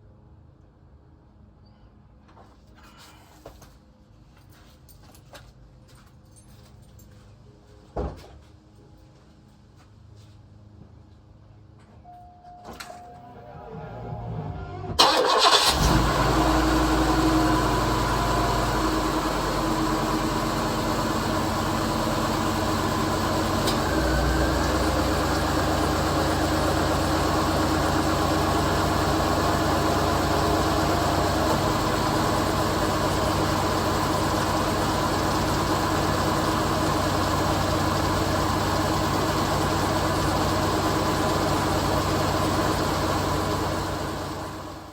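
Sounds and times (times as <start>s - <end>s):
car engine starting and idling: 12.7s - 44.9s.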